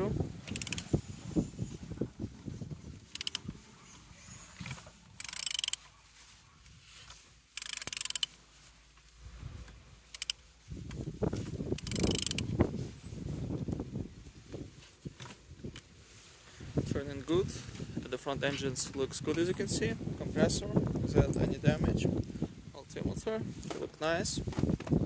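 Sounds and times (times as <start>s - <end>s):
ratchet wrench clicking: 0.5s - 0.8s, 3.1s - 3.4s, 5.2s - 5.8s, 7.6s - 8.4s, 10.1s - 10.4s, 11.8s - 12.4s.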